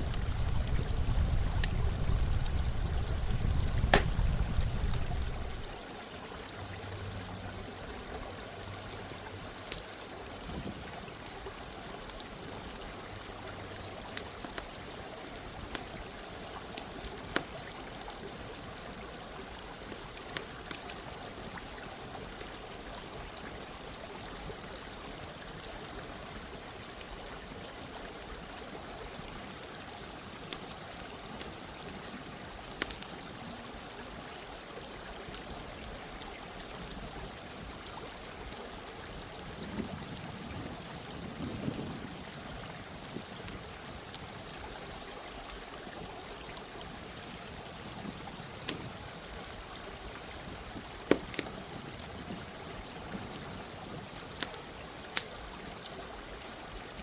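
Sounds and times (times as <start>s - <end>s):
campfire crackling: 0.0s - 5.8s, 9.3s - 57.0s
stream of running water: 0.0s - 57.0s.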